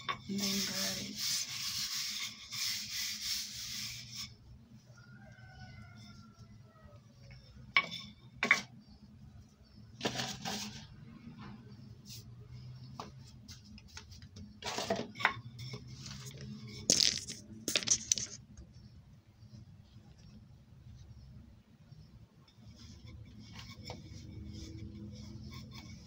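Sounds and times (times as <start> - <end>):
rolling pin tapping and rubbing: 22.5 - 26.0.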